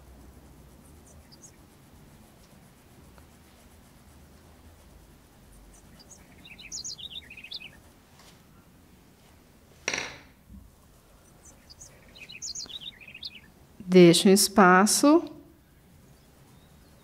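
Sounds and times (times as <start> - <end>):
small bird chirping: 0.3 - 3.4, 5.3 - 8.7, 10.7 - 13.6, 15.6 - 17.0.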